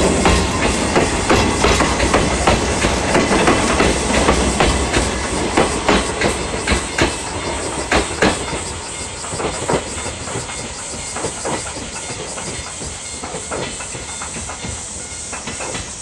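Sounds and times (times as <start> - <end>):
train rumble: 0.0 - 16.0
train wheels clacking over rail joints: 0.0 - 16.0.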